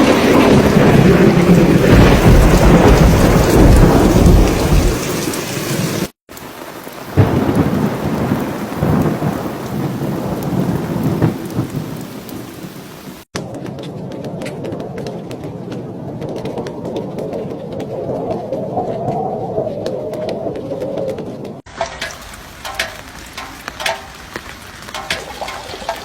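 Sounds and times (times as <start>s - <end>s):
loud thunder crack: 0.0s - 5.3s, 7.1s - 12.3s
rolling thunder: 0.0s - 5.8s, 7.1s - 13.2s
heavy rain: 0.0s - 13.3s, 21.7s - 26.0s.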